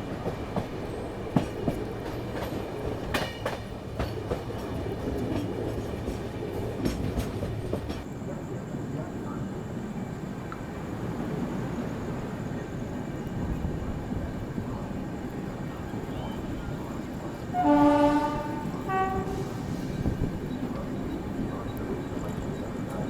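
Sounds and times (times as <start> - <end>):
train wheels clicking over joints: 0.0 - 8.1
train rumbling: 0.0 - 23.0.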